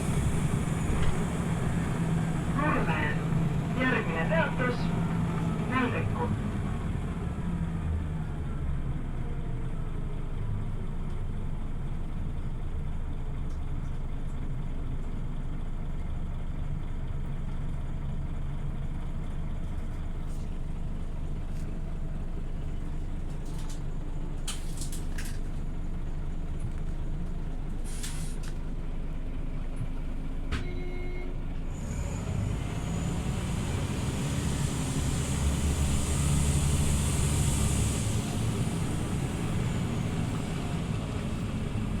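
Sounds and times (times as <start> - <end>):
bus engine running: 0.0 - 42.0
air brake hisses: 27.8 - 28.5.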